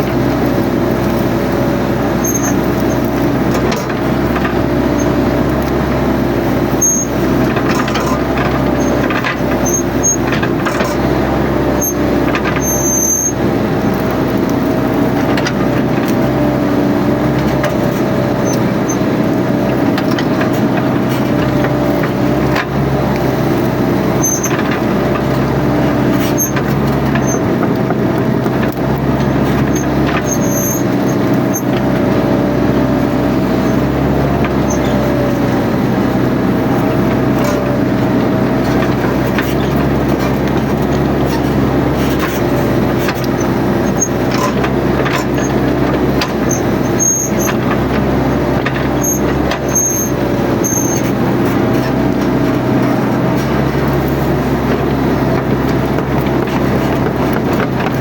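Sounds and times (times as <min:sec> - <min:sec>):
excavator engine running: 0:00.0 - 0:58.0
brief high squeaks: 0:02.2 - 0:03.0, 0:06.8 - 0:07.2, 0:46.4 - 0:47.6, 0:49.0 - 0:51.1.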